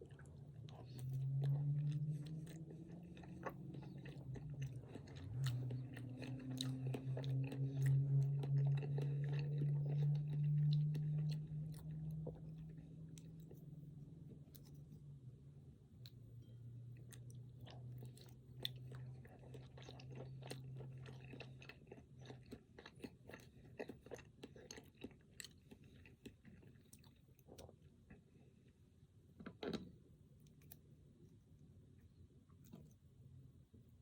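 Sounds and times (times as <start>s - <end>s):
close chewing with mouth clicks: 0.0s - 15.1s, 16.9s - 28.8s
low hum: 0.0s - 19.0s.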